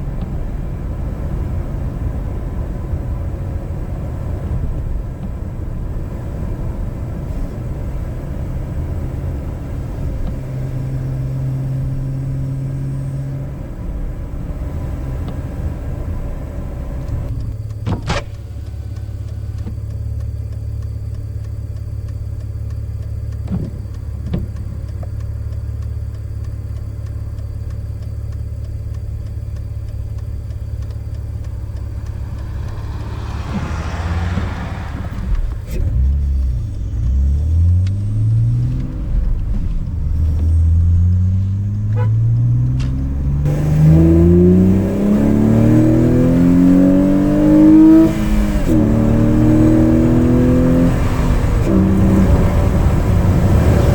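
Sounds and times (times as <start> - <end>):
car engine drone: 0.0 - 53.9
sharp clicks: 17.0 - 43.6.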